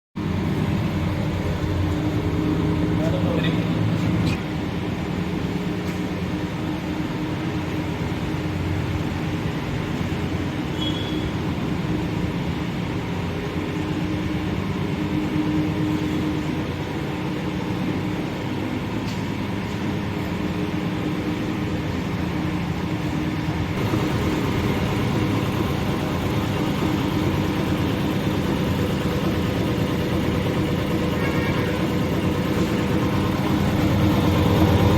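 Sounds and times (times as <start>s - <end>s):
machine motor humming: 23.8s - 34.9s.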